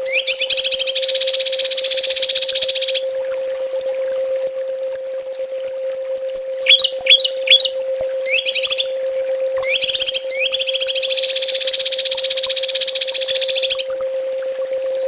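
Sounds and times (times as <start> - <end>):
small songbird calling: 0.0 - 3.0, 4.5 - 9.0, 9.6 - 13.8, 14.8 - 15.0
steady low hum: 0.0 - 15.0.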